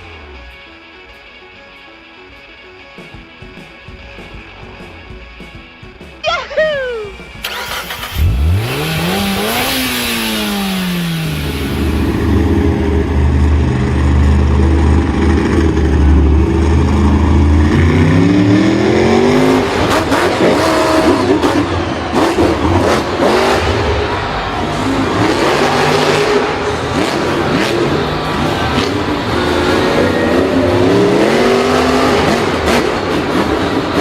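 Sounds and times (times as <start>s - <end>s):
vehicle engine revving: 7.3s - 34.0s.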